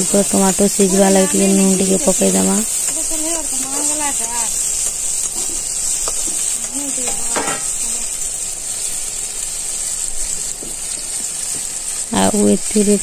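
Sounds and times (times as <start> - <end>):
vegetables sizzling in hot oil: 0.0 - 13.0
spatula stirring: 0.1 - 7.9.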